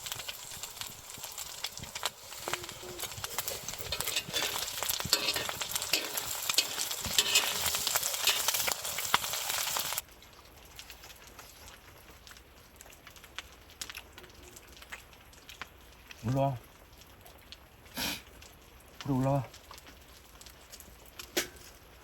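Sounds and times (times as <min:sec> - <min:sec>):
food sizzling in a hot pan: 0:00.0 - 0:10.0, 0:17.9 - 0:18.4.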